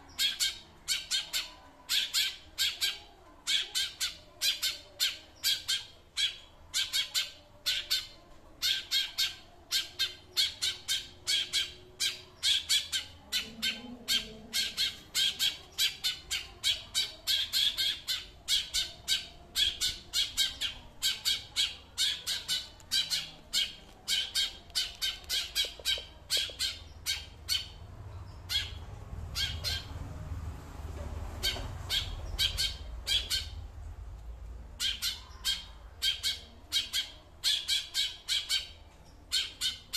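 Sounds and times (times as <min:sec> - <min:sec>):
songbird harsh calls: 0:00.0 - 0:27.8.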